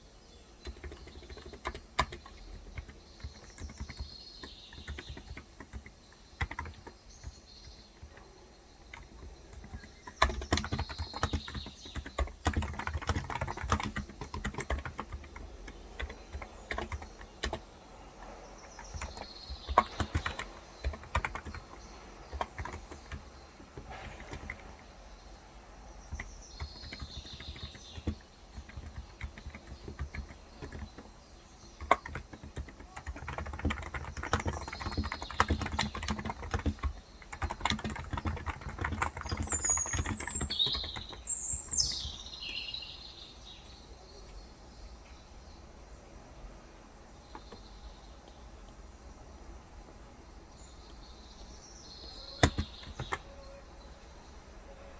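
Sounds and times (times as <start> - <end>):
birds chirping: 0.0 - 54.9
keyboard typing: 0.4 - 25.1, 25.9 - 42.6, 52.1 - 53.6.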